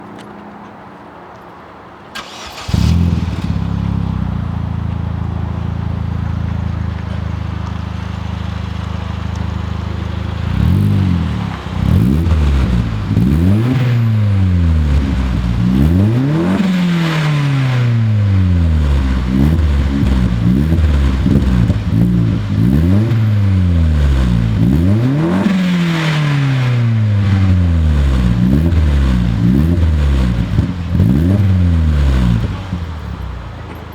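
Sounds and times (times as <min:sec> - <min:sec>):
car engine idling and revving: 0:02.2 - 0:33.9.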